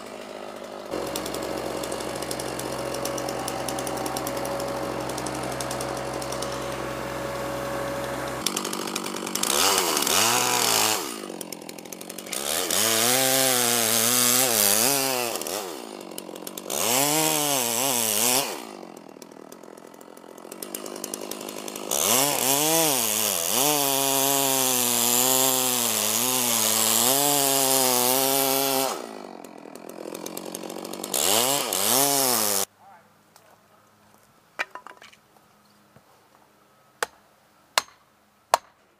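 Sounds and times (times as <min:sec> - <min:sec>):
chainsaw revving and cutting wood: 0:00.0 - 0:32.7
low engine hum: 0:01.0 - 0:08.4.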